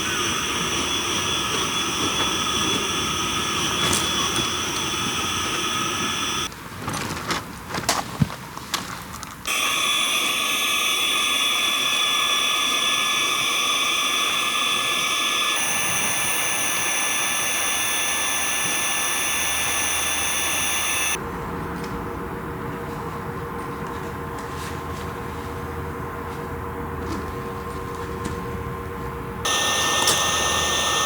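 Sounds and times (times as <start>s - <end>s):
electric air pump whining: 0.0s - 6.5s, 9.5s - 21.2s, 29.5s - 31.0s.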